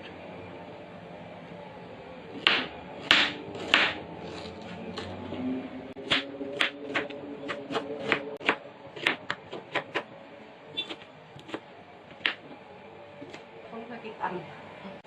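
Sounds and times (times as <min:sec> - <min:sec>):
knife chopping on cutting board: 0:02.4 - 0:05.1, 0:06.0 - 0:10.0.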